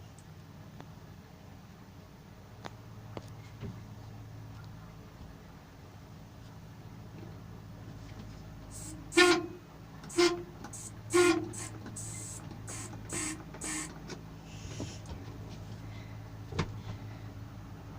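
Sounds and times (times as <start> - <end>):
distant diesel engine droning: 7.4 - 17.9
short pitched horn blasts: 8.7 - 14.0.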